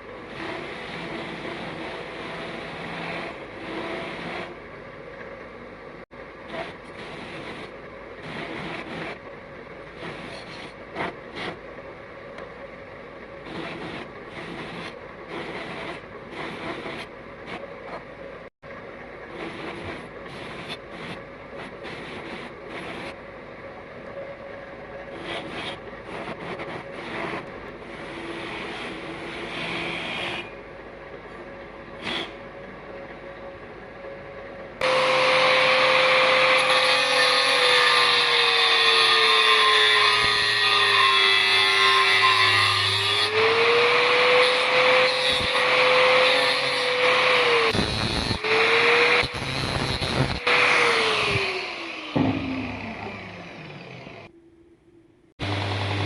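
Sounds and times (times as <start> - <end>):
power tool running: 34.8 - 54.3, 55.4 - 56.0.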